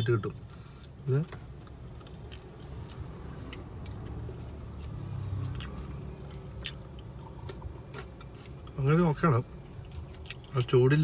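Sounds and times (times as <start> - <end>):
low car rumble: 0.0 - 11.0
person chewing crunchy food: 1.6 - 8.8, 9.7 - 10.6.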